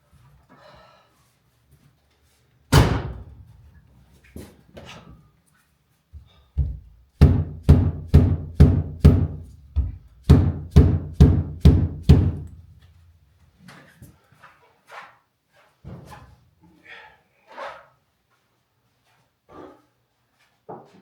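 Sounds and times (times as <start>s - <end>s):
percussive knocks with ringing decay: 7.2s - 9.4s, 10.3s - 12.5s.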